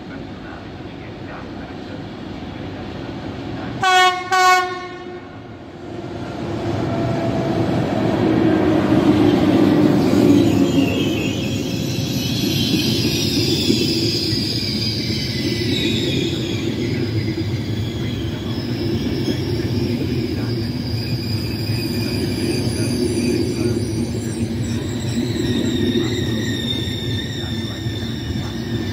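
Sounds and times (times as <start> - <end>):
train rumbling past: 0.0 - 28.9
train horn blast: 3.8 - 5.5
high squealing: 7.1 - 28.9.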